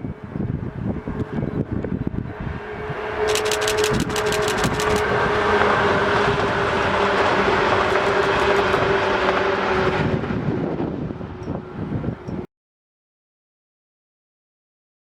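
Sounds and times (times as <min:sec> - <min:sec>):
steady train tone: 0:00.0 - 0:12.4
train running rumble: 0:00.6 - 0:12.4
train wheels clicking over rail joints: 0:03.3 - 0:05.0, 0:07.8 - 0:08.8.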